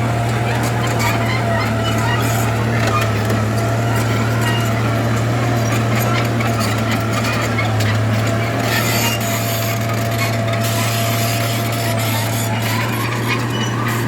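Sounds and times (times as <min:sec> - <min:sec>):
bulldozer diesel engine droning: 0:00.0 - 0:14.0
tracks and blade scraping dirt: 0:00.0 - 0:14.0.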